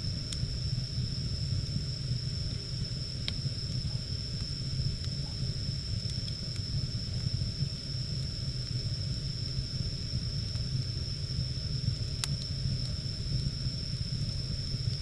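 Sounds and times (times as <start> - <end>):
fire crackles: 0.0 - 15.0
high-pitched whine: 0.0 - 15.0
wood fire roaring: 0.0 - 15.0.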